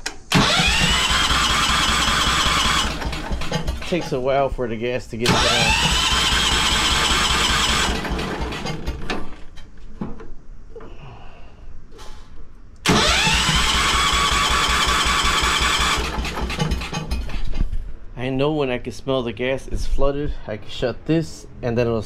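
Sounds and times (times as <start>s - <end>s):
electric starter cranking engine: 0.2s - 4.1s, 5.2s - 9.4s, 12.8s - 17.3s.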